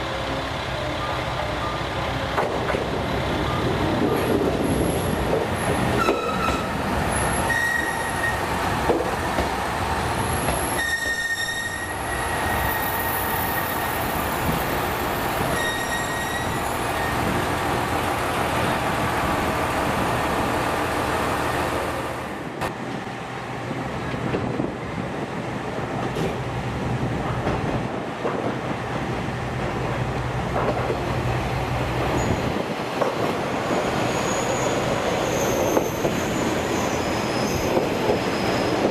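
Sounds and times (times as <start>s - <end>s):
railcar engine rumble: 0.0s - 38.9s
train wheels squealing: 4.6s - 8.6s, 10.4s - 17.3s, 32.1s - 32.6s, 33.5s - 38.9s.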